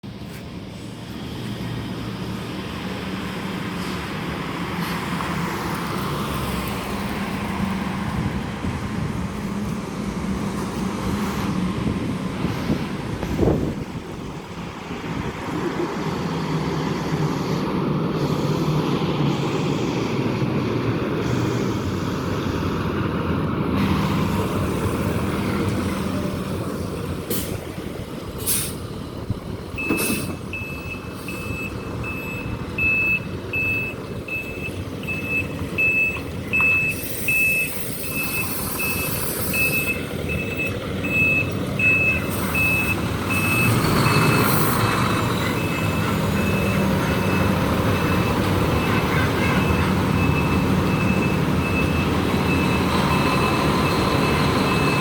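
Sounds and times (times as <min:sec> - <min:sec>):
truck engine running: 0:00.0 - 0:55.0
backup alarm beeping: 0:29.8 - 0:44.4, 0:45.5 - 0:55.0.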